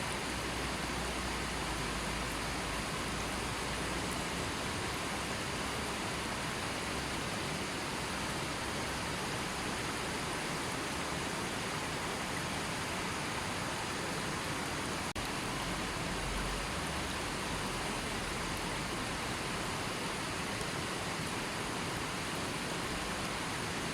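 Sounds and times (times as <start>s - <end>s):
river flowing: 0.0s - 23.9s.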